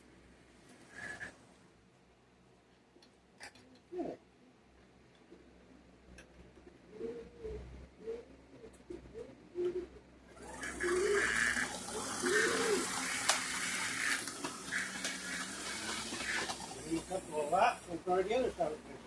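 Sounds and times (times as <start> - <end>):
faint steady hum: 0.0 - 19.0
model train whirring on track: 0.9 - 1.3, 10.3 - 18.9
bird cooing: 3.8 - 4.2, 6.9 - 17.7.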